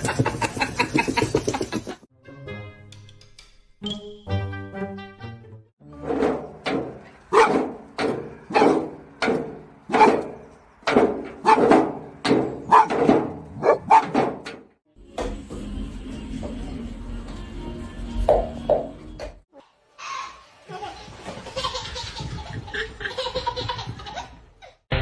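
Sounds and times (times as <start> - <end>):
dog barking: 7.3 - 7.7, 8.5 - 8.8, 9.9 - 10.3, 11.4 - 11.7, 12.7 - 13.0, 13.6 - 14.2.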